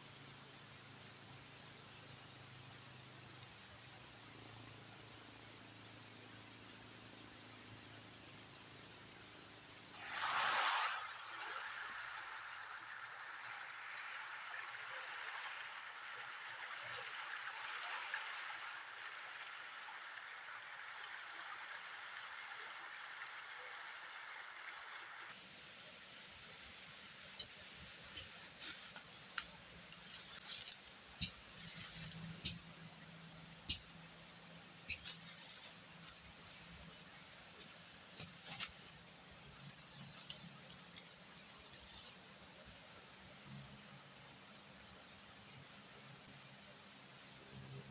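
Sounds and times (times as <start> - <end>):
rushing water: 9.9 - 32.8
sharp clicks and knocks: 26.0 - 32.8, 33.7 - 34.0, 34.9 - 36.2.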